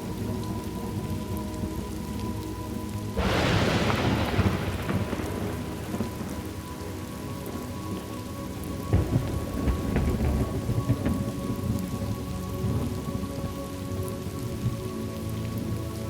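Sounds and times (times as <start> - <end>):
steady rain: 0.0 - 16.0
thunder clap rumbling: 3.2 - 13.6.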